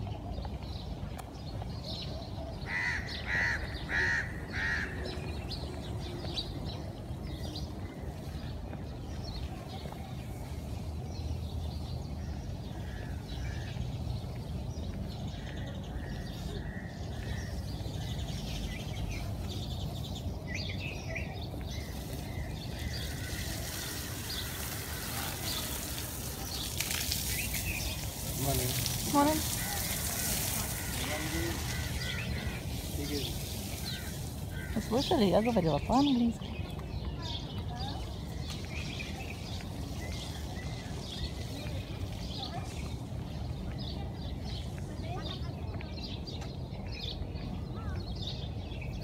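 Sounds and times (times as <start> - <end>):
water spraying from garden hose: 21.0 - 36.3, 38.3 - 43.5
bird calling: 21.2 - 36.6.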